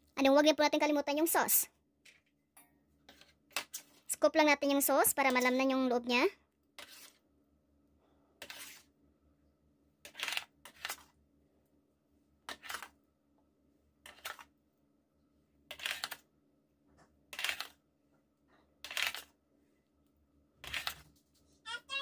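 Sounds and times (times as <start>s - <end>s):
spoon scraping a bowl: 3.0s - 4.0s, 6.8s - 7.2s, 8.4s - 9.0s.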